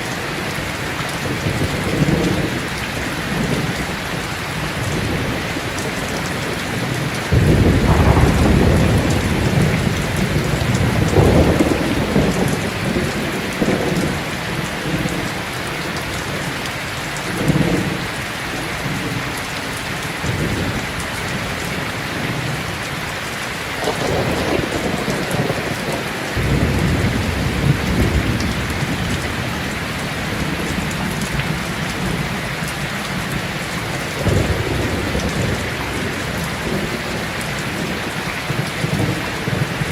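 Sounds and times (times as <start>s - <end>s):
heavy rain: 0.0s - 39.9s
thunder rumbling: 0.2s - 16.5s, 23.8s - 39.9s.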